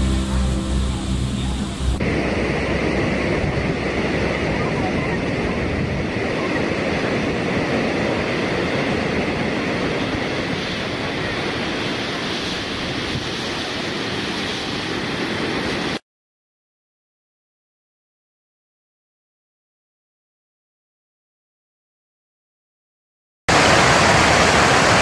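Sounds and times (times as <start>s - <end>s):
waterfall rushing over rocks: 0.0s - 16.0s, 23.5s - 25.0s.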